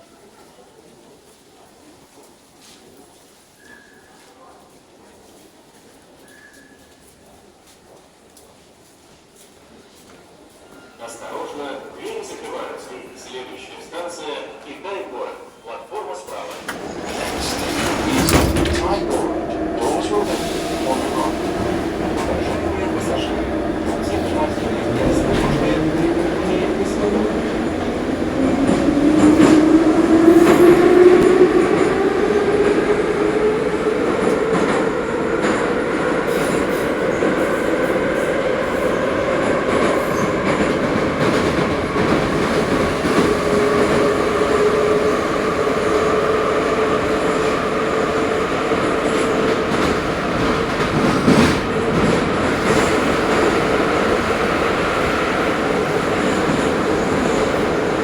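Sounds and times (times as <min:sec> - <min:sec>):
wheels rumbling on rail: 0:16.4 - 0:58.0.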